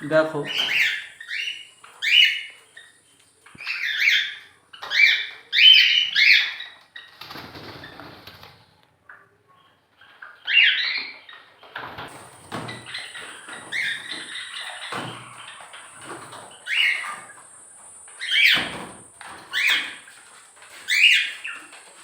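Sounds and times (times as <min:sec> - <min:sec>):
birds chirping: 0:00.0 - 0:08.4, 0:09.0 - 0:22.0
wings flapping: 0:07.1 - 0:08.8, 0:11.7 - 0:22.0.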